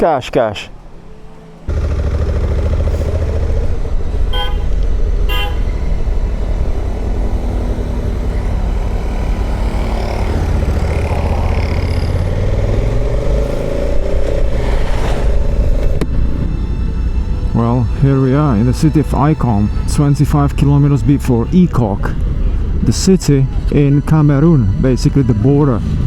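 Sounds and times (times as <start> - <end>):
motorcycle engine and wind rumble: 1.7 - 16.9
motorcycle horn toots: 4.3 - 5.9.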